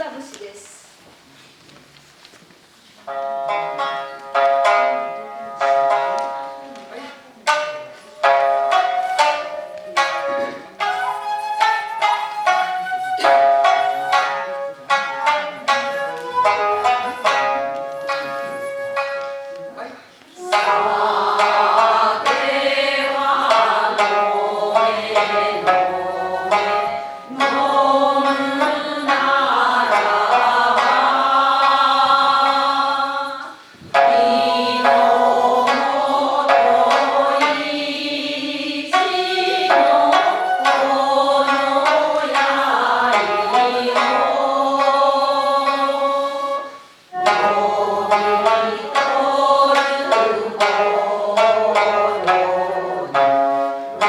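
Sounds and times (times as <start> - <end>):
plucked shamisen: 3.0 - 54.0
person singing folk song: 11.6 - 54.0.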